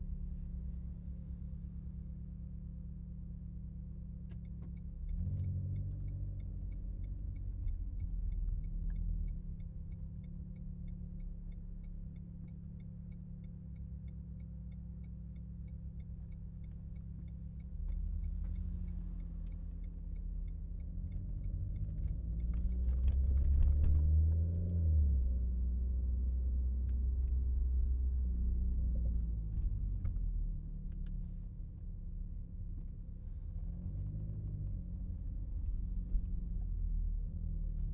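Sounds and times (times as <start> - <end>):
steady ticking: 5.7 - 22.9.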